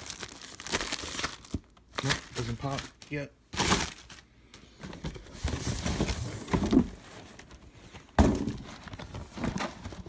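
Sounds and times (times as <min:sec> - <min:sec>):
cardboard box rustling and scraping: 0:05.1 - 0:07.4
sharp thunk: 0:08.2 - 0:08.6.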